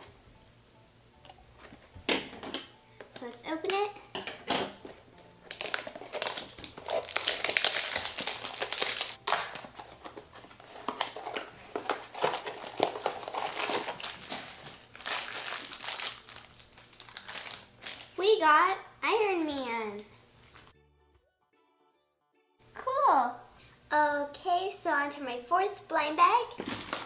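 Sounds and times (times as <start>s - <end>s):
wrapper crinkling and rustling: 4.8s - 18.2s, 19.2s - 20.7s, 26.6s - 27.0s.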